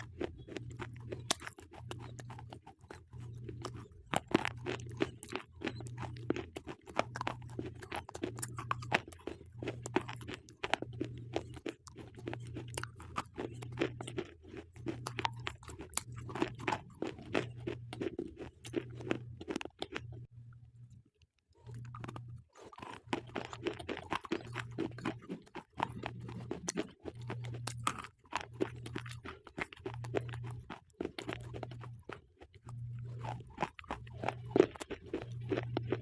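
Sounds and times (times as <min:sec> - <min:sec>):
slate pencils crunching: 0:21.7 - 0:36.0.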